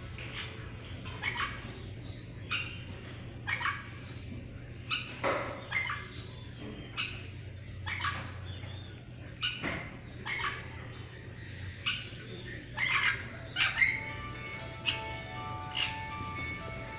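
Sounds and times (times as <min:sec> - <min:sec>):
birds squawking: 0:00.0 - 0:16.9
music: 0:13.9 - 0:16.9.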